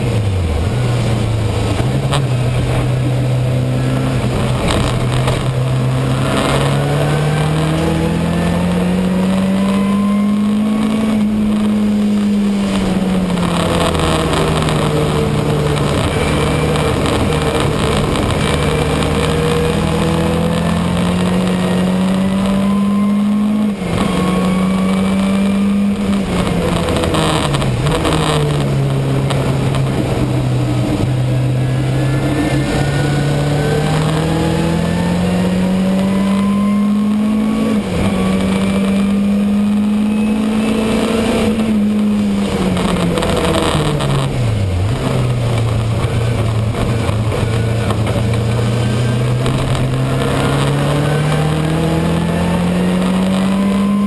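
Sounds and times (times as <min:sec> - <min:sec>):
race car engine from inside cabin: 0:00.0 - 0:54.0.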